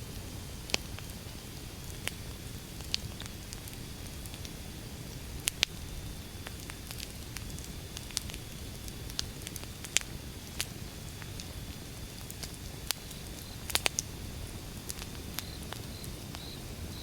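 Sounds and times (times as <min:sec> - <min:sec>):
fire crackles and pops: 0:00.0 - 0:17.0
wood fire burning: 0:00.0 - 0:17.0.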